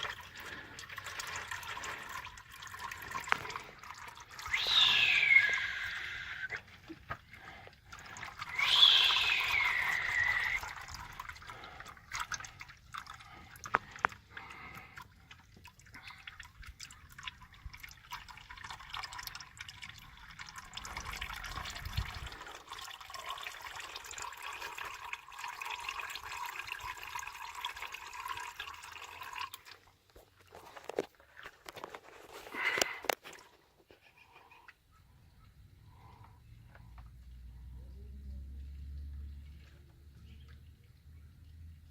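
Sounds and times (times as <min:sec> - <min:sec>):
oil draining into a pan: 0:00.0 - 0:34.8, 0:35.5 - 0:41.9.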